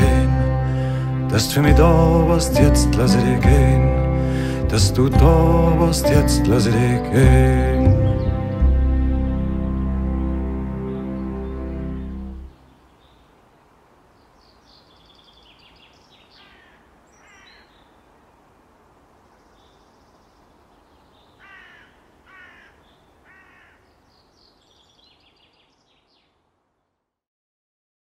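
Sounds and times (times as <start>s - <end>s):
birds chirping: 0.0s - 26.4s
faint background hiss: 8.6s - 27.1s
harsh bird calls: 14.1s - 18.5s, 19.3s - 26.4s.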